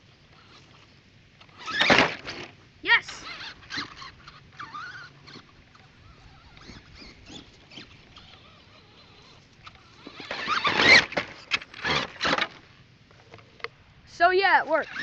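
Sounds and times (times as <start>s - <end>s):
rc truck motor whining: 0.3s - 12.8s, 14.7s - 15.0s
tyres scrabbling: 1.5s - 12.6s.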